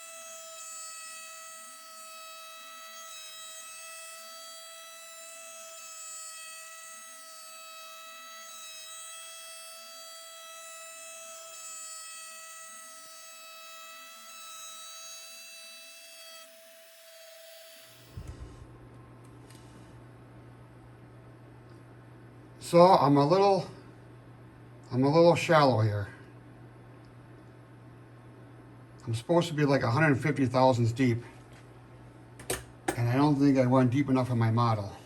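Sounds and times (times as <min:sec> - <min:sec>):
router spindle whining: 0:00.0 - 0:18.8
low steady hum: 0:18.0 - 0:35.0.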